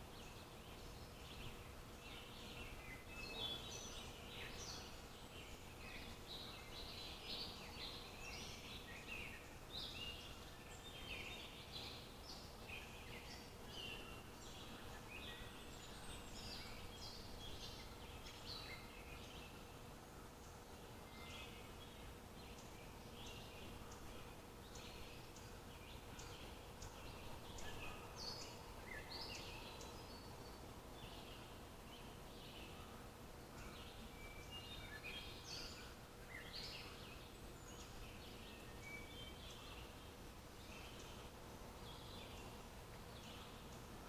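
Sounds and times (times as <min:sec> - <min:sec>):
background hiss: 0:00.0 - 0:44.0
small songbirds chirping: 0:00.0 - 0:44.0.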